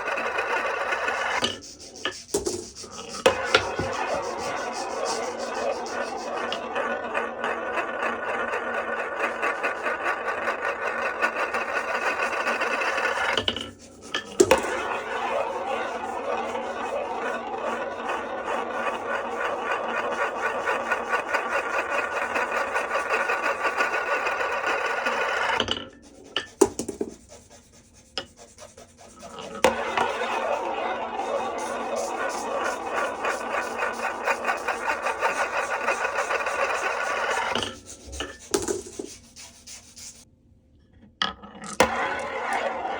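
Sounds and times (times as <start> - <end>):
marbles rolling on wooden run: 2.3 - 25.6, 29.3 - 39.0.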